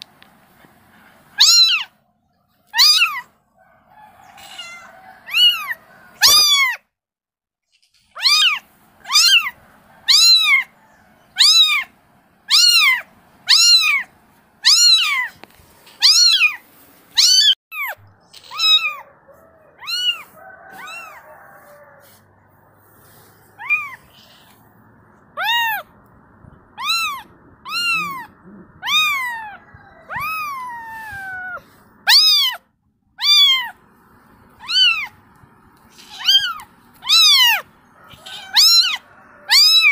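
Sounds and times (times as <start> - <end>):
kitten meowing: 1.4 - 1.9, 2.7 - 3.3, 4.3 - 6.8, 7.8 - 10.7, 11.4 - 11.9, 12.5 - 16.6, 17.2 - 19.0, 19.8 - 21.2, 23.6 - 24.6, 25.4 - 25.9, 26.7 - 32.6, 33.2 - 33.8, 34.6 - 35.2, 35.9 - 39.9.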